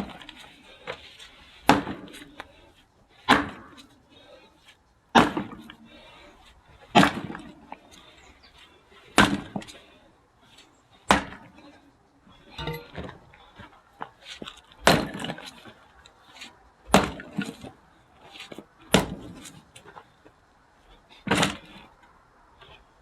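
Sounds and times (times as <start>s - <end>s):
axe splitting firewood: 1.6s - 2.6s, 3.3s - 3.9s, 5.1s - 6.2s, 6.9s - 7.8s, 9.1s - 9.9s, 11.0s - 11.6s, 14.3s - 15.7s, 16.4s - 17.8s, 18.4s - 20.0s, 21.2s - 21.9s.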